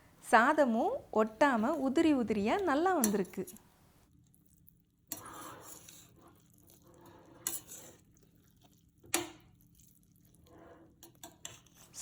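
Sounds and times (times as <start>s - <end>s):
spoon scraping pot: 1.5s - 3.7s, 5.1s - 12.0s
spoon clinking against metal pot: 2.6s - 3.6s.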